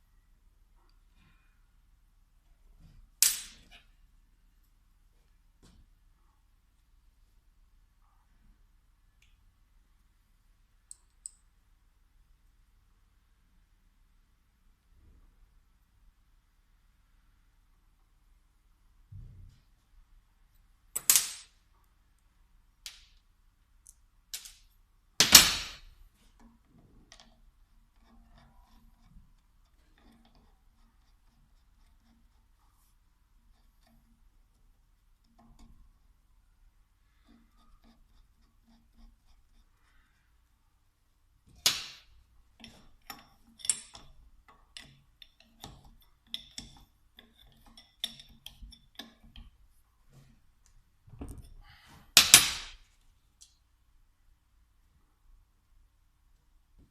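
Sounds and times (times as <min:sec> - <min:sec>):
metal parts knocking: 0:42.6 - 0:49.6.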